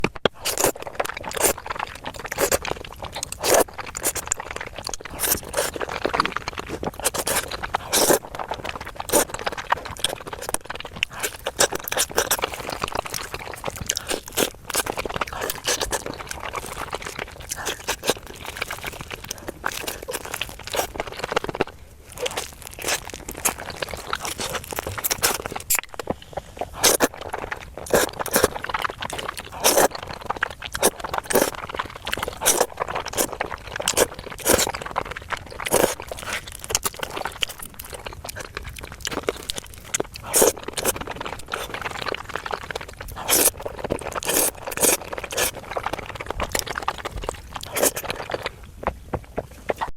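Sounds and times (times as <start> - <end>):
crunching and chewing food: 0.0 - 49.9.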